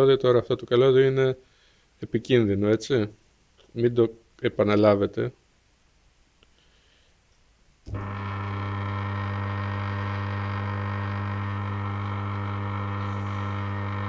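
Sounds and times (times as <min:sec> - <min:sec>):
washing machine motor humming: 0:07.9 - 0:14.0.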